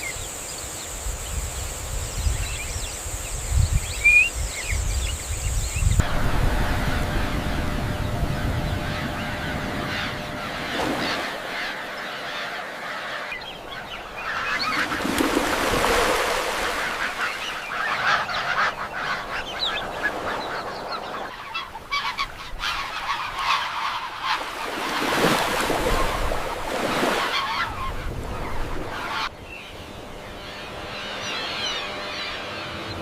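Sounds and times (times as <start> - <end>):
waterbirds calling: 0.0 - 33.0.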